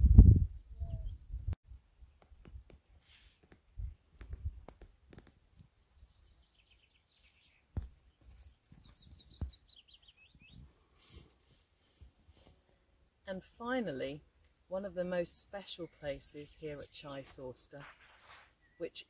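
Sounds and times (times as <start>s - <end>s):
songbird chirping: 0.5s - 1.4s, 5.2s - 11.5s, 13.2s - 19.0s.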